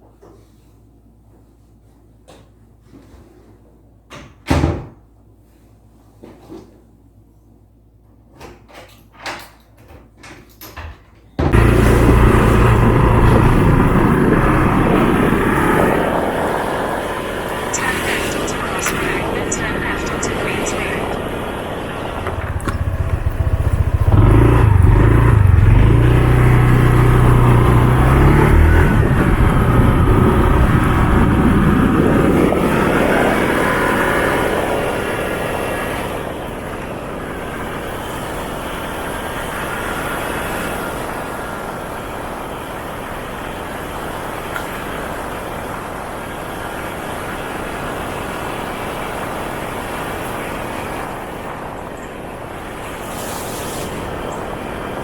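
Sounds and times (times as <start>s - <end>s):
motorcycle engine accelerating: 11.5s - 20.3s, 21.1s - 42.7s.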